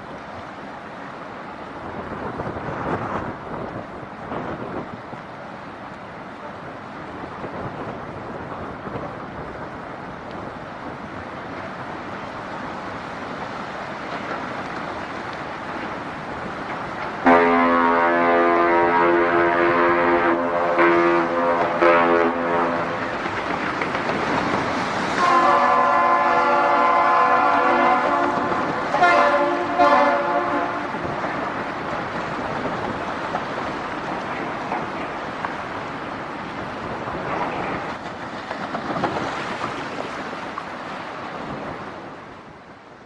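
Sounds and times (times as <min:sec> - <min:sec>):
rushing water: 0:00.0 - 0:43.0
wind: 0:00.0 - 0:43.0
ship's horn blasts: 0:17.2 - 0:23.2, 0:25.1 - 0:31.2.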